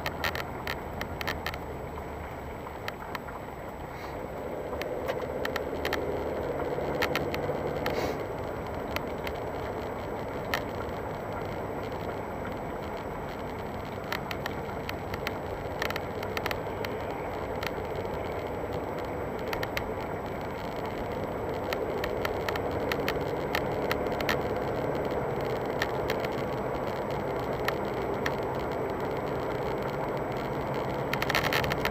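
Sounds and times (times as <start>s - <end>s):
moving car noise: 0.0s - 31.9s.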